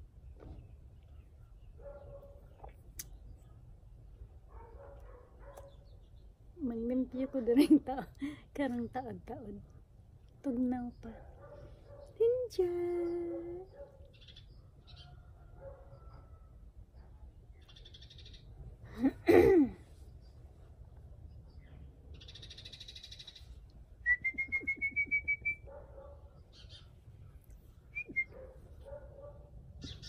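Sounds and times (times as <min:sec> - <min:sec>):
birds chirping and calling: 0:12.9 - 0:16.3, 0:17.5 - 0:18.6, 0:21.3 - 0:23.6, 0:25.7 - 0:27.1, 0:28.3 - 0:30.0
bird whistled notes: 0:24.1 - 0:25.7.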